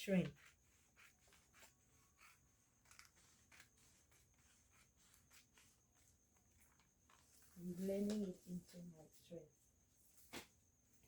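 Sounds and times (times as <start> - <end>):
scratches and ticks on paper: 0.0 - 8.9.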